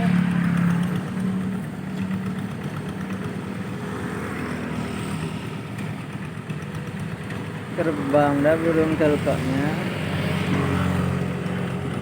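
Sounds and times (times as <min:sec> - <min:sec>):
hand tractor engine running: 0:00.0 - 0:12.0.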